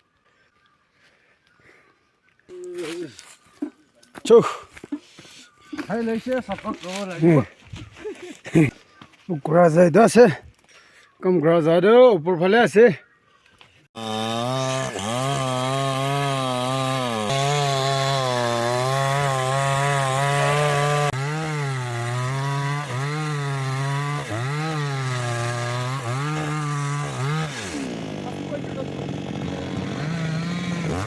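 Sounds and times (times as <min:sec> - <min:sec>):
chainsaw cutting wood: 0:14.0 - 0:31.0.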